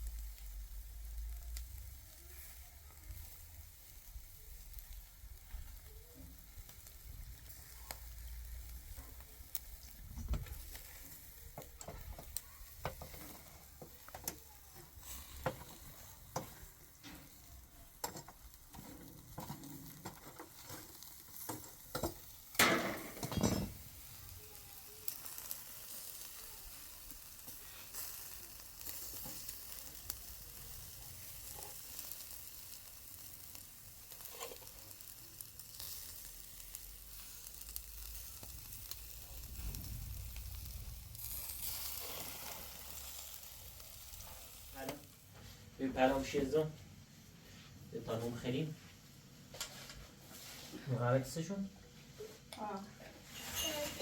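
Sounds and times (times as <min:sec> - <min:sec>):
food sizzling in a pan: 0:00.0 - 0:46.6, 0:52.6 - 0:54.0.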